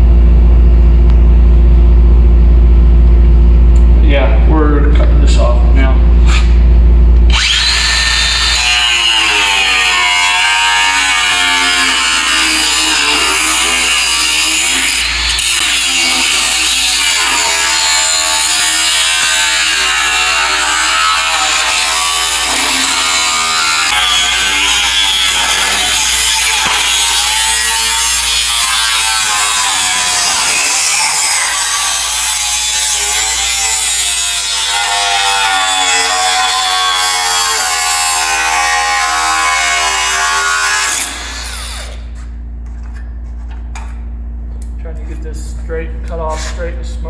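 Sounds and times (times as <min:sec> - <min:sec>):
electric cutting tool cutting metal: 0:07.2 - 0:42.1.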